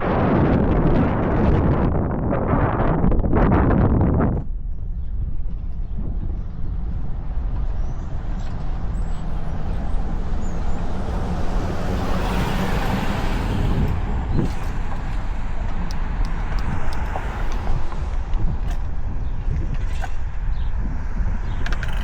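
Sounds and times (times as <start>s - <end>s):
wind rumbling on microphone: 0.0s - 22.0s
motor vehicle passing: 6.4s - 22.0s.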